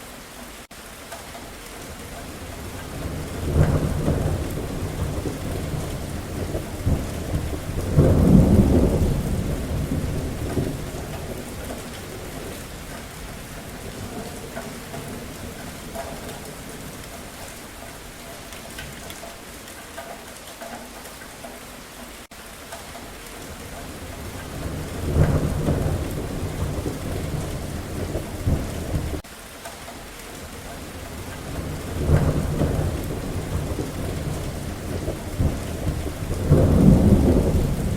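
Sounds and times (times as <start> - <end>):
steady rainfall: 0.0 - 37.9
rolling thunder: 2.4 - 17.1, 23.9 - 29.2, 31.0 - 37.9.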